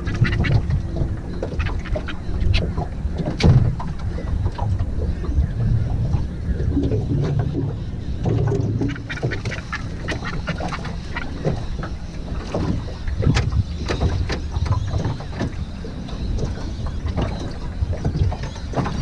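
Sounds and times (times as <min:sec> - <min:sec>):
water: 0:00.0 - 0:19.0
wind: 0:00.0 - 0:19.0.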